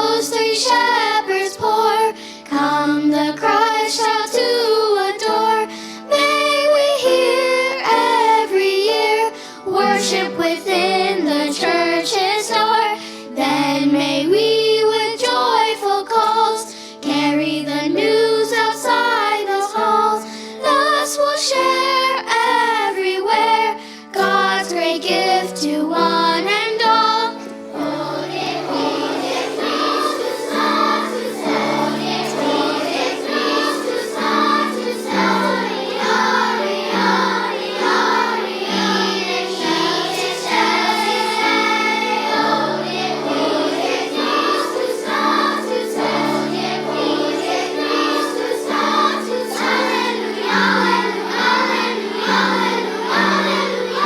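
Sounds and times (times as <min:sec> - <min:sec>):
children's choir singing: 0:00.0 - 0:54.0
musical accompaniment: 0:24.3 - 0:54.0.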